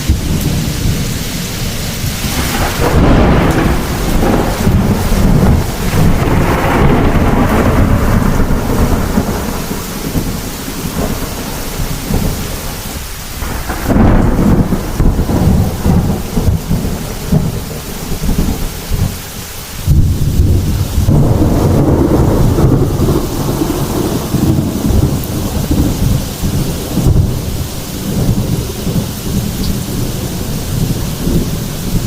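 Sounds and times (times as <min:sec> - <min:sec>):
steady rain: 0:00.0 - 0:32.0
thunder rumbling: 0:00.0 - 0:32.0.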